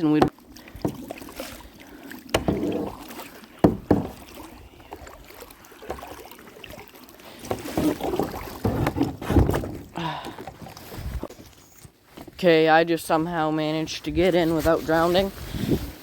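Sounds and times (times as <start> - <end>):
kayak knocking and scraping: 0.0 - 16.0
shuffling: 10.6 - 16.0.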